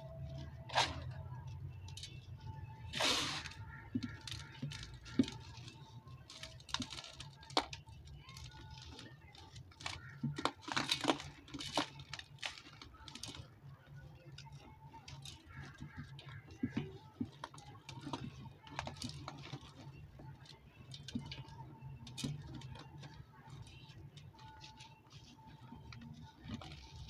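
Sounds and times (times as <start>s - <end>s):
dry dirt crumbling and crunching: 0.0s - 13.6s.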